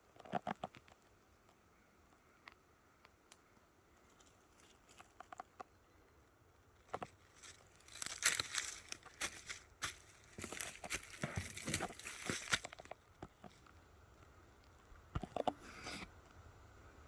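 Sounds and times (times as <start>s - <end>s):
rustling and crackling: 6.8s - 16.4s.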